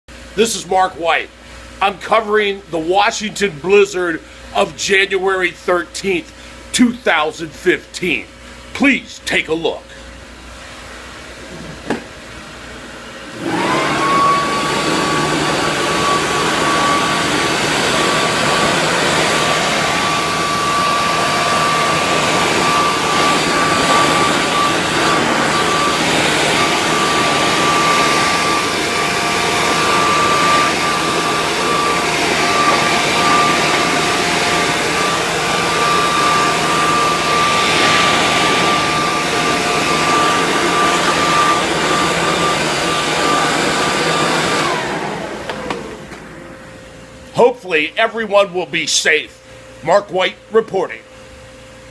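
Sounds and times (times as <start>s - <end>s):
vacuum cleaner motor whine: 10.7s - 48.5s, 49.1s - 51.9s.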